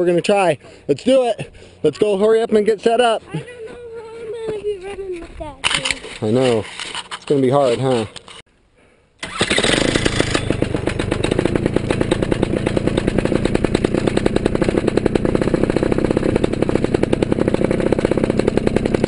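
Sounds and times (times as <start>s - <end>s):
paramotor engine idling: 9.4s - 19.0s.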